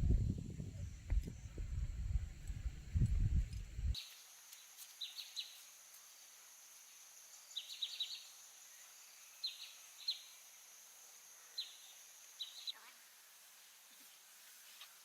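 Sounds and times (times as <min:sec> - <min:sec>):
low rumbling noise: 0:00.0 - 0:04.0
high-pitched insect hum: 0:00.0 - 0:15.0.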